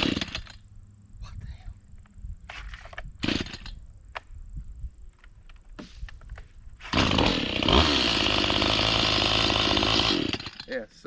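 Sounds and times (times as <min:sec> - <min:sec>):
chainsaw engine running: 0:00.0 - 0:00.6, 0:03.2 - 0:03.7, 0:06.8 - 0:10.8.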